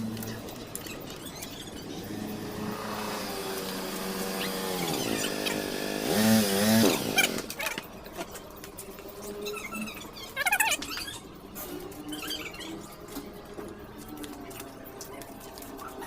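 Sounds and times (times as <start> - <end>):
motor running: 1.8 - 7.8.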